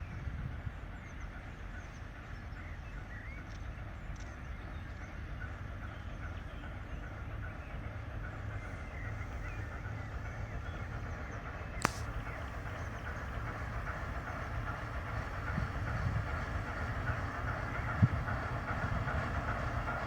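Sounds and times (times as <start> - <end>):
steady low rumble: 11.7 - 20.0.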